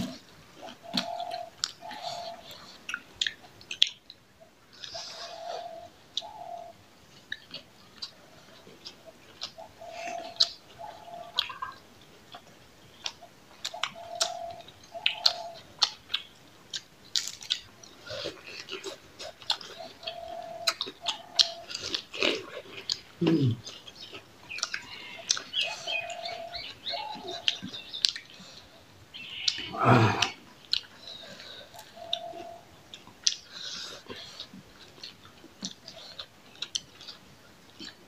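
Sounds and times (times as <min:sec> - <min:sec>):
bird calling low notes: 0:00.0 - 0:02.8, 0:04.4 - 0:06.8, 0:09.1 - 0:11.8, 0:13.2 - 0:15.7, 0:19.7 - 0:21.8, 0:24.5 - 0:30.4, 0:31.1 - 0:32.8
open-mouthed chewing and smacking: 0:00.0 - 0:38.0
lettuce leaf crunching: 0:17.1 - 0:19.6.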